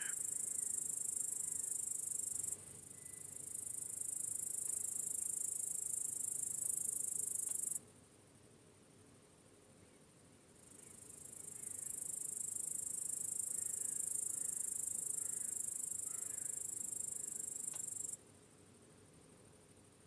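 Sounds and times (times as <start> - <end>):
crickets trilling: 0.0 - 7.8, 10.7 - 18.2.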